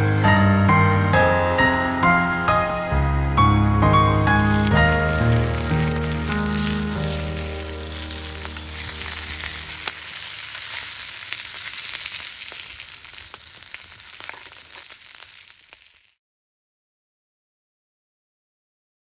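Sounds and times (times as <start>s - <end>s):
oil sizzling with pops: 4.1s - 16.2s.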